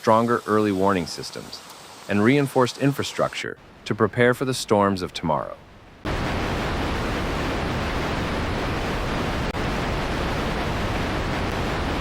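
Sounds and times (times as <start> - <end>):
loud rushing water: 6.0 - 12.0.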